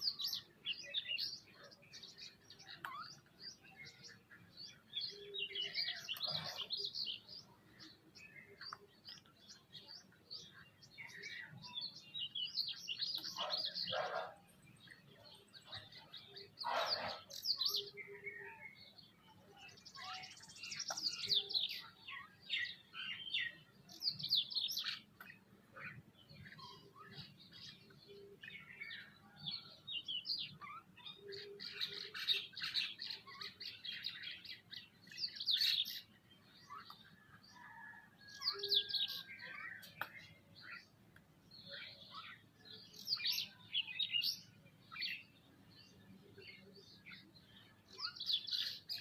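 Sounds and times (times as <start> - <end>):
birds chirping: 0.0 - 49.0
harsh bird calls: 15.8 - 18.8.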